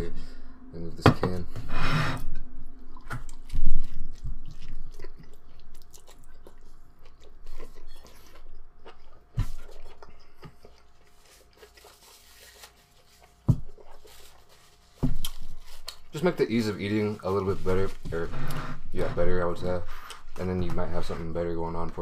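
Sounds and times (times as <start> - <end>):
person biting and chewing food: 2.6 - 16.1.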